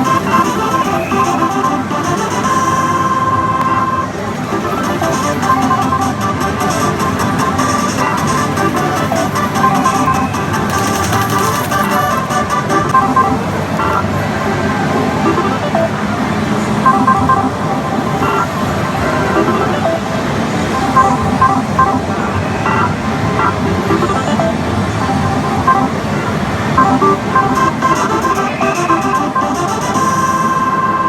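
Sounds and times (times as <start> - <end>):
slot machine jingles and music: 0.0 - 14.0, 26.8 - 31.0
short electronic beeps: 26.8 - 31.0.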